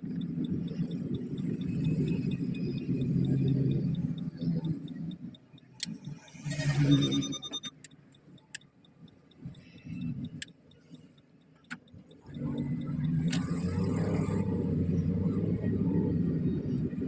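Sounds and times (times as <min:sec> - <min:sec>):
car engine running: 0:00.0 - 0:17.0
light clicks: 0:07.6 - 0:15.9.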